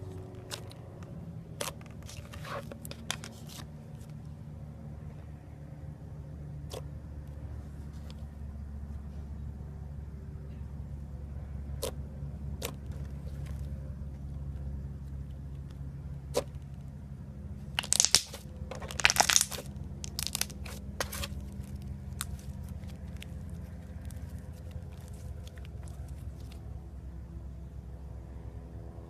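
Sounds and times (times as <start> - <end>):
crunchy slime crackling: 17.8 - 26.6.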